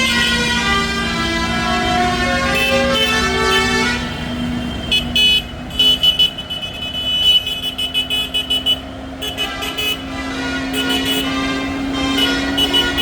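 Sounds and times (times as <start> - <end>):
engine hum: 0.0 - 13.0
vehicle horns beeping: 0.0 - 13.0.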